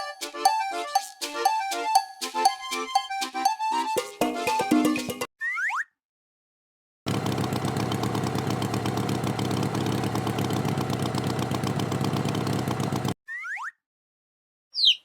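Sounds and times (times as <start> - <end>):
chugging engine running: 7.1 - 13.2.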